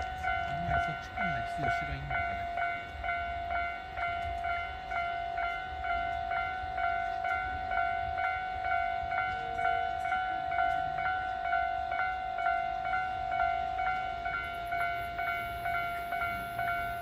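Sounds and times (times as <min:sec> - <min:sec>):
level crossing bell ringing: 0:00.0 - 0:17.0.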